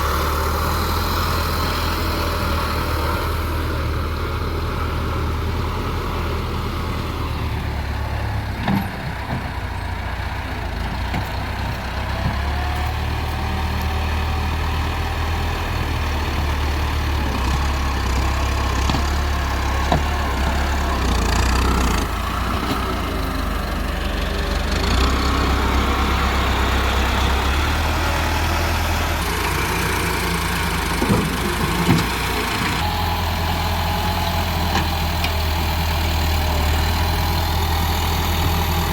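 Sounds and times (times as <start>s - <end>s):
heavy diesel engines running: 0.0s - 38.9s.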